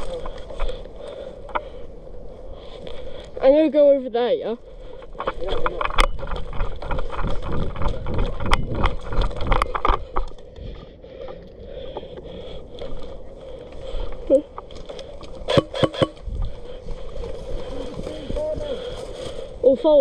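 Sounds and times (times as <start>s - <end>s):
sharp clicks: 15.5s - 16.2s.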